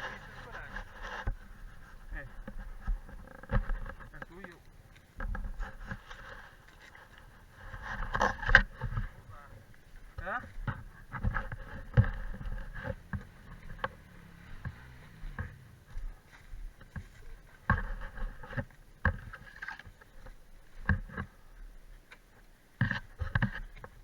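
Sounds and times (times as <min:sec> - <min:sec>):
quad bike engine at low revs: 0:10.1 - 0:18.4
knocks and clunks: 0:10.2 - 0:16.2.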